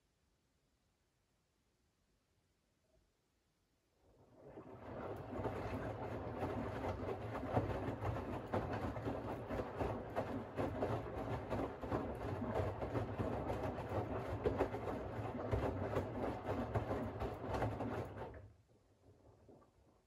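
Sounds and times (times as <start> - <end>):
laundry and water churning: 4.2 - 18.5.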